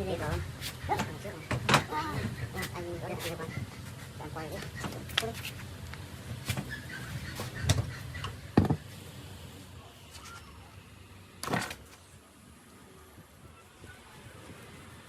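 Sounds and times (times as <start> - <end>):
knocks and clunks: 0.2 - 2.4, 7.4 - 8.9.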